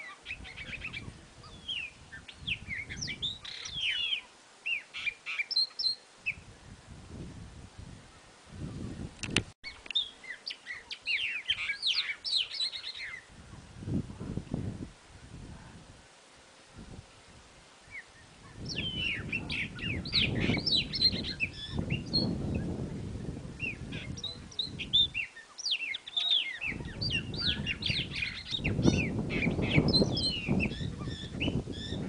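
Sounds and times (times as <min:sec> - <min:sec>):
birds calling high sharp notes: 0:09.7 - 0:13.3, 0:17.9 - 0:22.7, 0:23.6 - 0:32.0.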